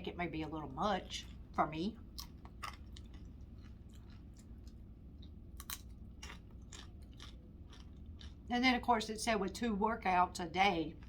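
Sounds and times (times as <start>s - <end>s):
person chewing food: 1.0s - 8.5s
mouth clicks and crunches: 1.1s - 8.5s.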